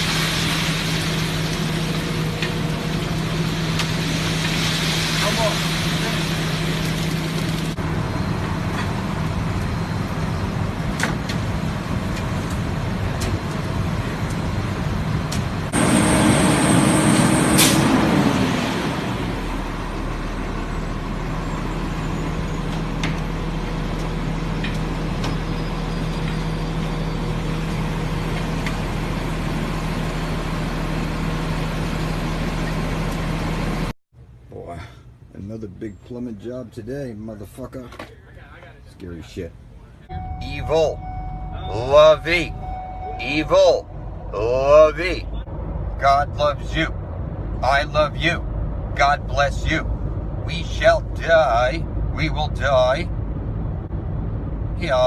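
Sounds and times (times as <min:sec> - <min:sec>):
vehicle road and engine noise: 0:00.0 - 0:55.0
high steady tone: 0:40.1 - 0:45.4.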